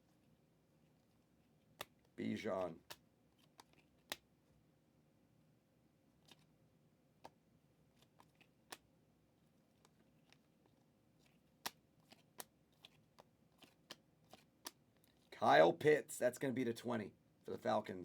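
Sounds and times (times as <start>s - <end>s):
trading cards clicking when flipped: 1.8s - 2.1s, 2.8s - 4.3s, 8.0s - 8.9s, 11.2s - 15.3s.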